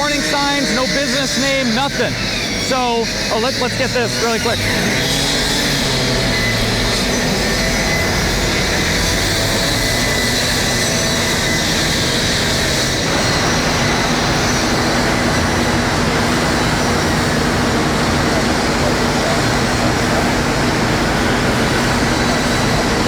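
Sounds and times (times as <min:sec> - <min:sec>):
steady tones: 0:00.0 - 0:08.2
loud machine drone: 0:00.0 - 0:23.0.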